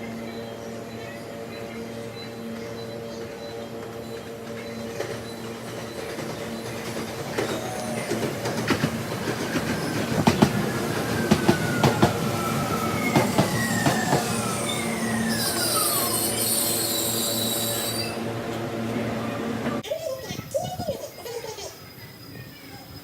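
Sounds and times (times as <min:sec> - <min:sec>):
steady train hum: 0:00.0 - 0:23.0
falling whines: 0:07.2 - 0:18.4.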